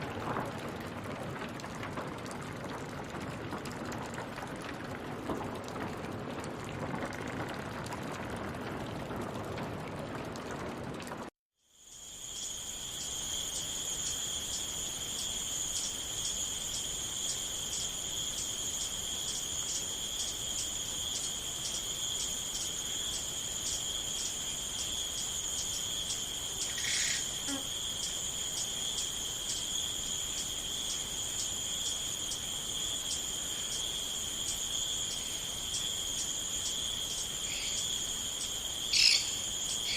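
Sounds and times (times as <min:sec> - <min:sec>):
water rushing: 0:00.0 - 0:11.3
crickets chirping: 0:11.6 - 0:39.9.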